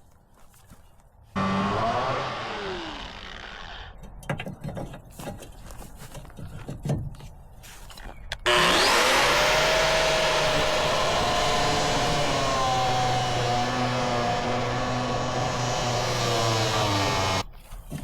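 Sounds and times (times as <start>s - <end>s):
angle grinder whining: 1.4s - 4.0s, 8.5s - 17.4s.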